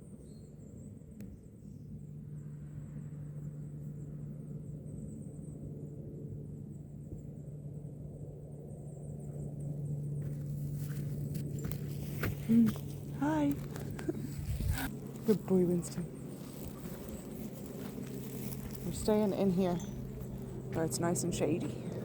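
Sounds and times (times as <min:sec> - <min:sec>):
low hum: 0:00.0 - 0:22.0
light footsteps: 0:10.2 - 0:22.0
faint rustling: 0:10.3 - 0:20.9.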